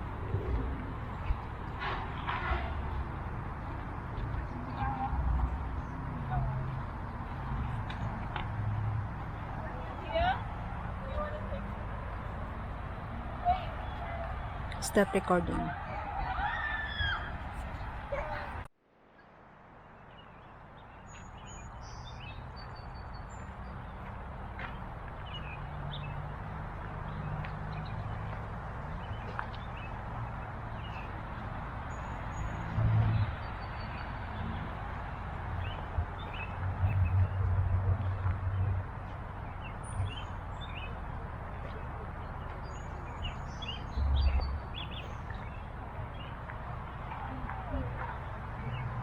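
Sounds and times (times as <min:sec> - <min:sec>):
birds chirping: 0:19.8 - 0:37.4, 0:38.0 - 0:49.0.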